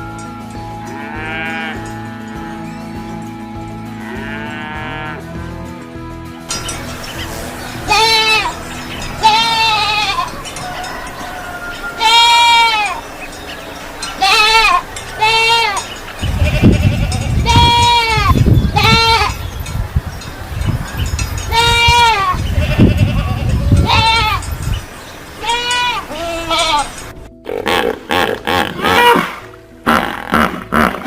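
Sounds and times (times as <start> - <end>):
goat bleating: 1.0 - 2.5, 4.0 - 5.3, 7.8 - 8.6, 9.2 - 10.4, 12.0 - 13.0, 14.2 - 19.4, 21.5 - 24.4, 25.4 - 27.0.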